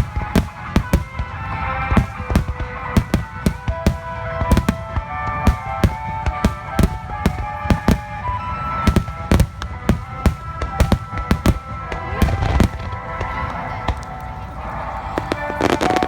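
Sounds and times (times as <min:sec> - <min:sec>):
fireworks bursting with sharp bangs: 0:00.0 - 0:16.0
music playing: 0:00.0 - 0:16.0.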